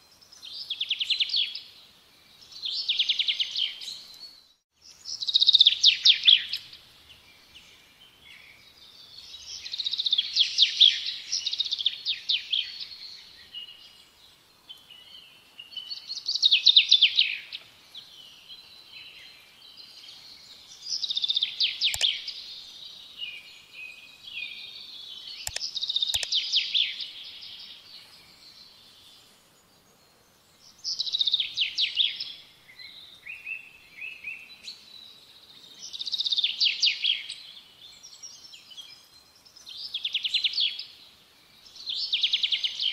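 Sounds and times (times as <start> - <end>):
songbird singing: 0.0 - 42.9
sharp clicks: 21.9 - 22.2, 25.4 - 26.4.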